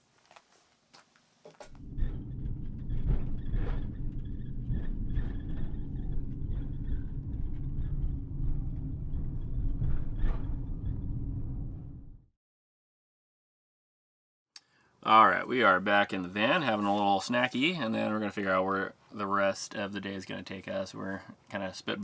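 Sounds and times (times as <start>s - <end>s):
van rumbling on the move: 1.8s - 12.2s.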